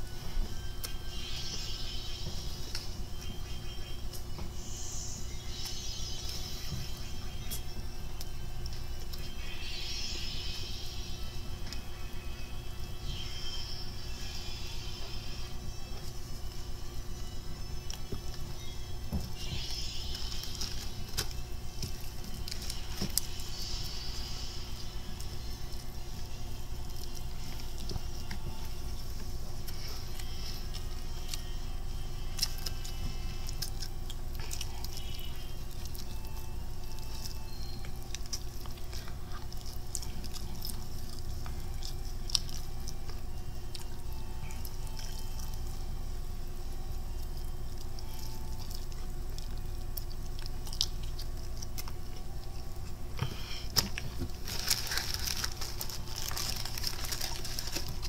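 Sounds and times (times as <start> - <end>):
low steady hum: 0.0 - 58.0
person chewing fried chicken: 19.4 - 58.0
paper rustling: 53.8 - 58.0.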